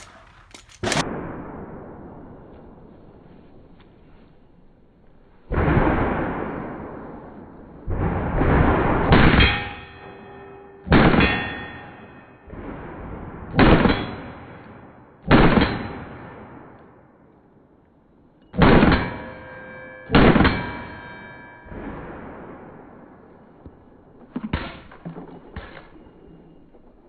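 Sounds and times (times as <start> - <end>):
pistol shots: 0.0 - 1.4
ringing clang of steel target: 9.1 - 12.6, 18.4 - 23.6.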